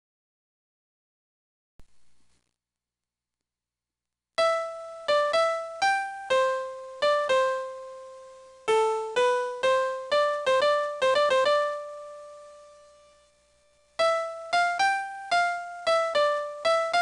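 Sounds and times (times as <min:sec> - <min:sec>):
bell-like electric piano tune: 0:08.7 - 0:12.6, 0:14.0 - 0:17.0.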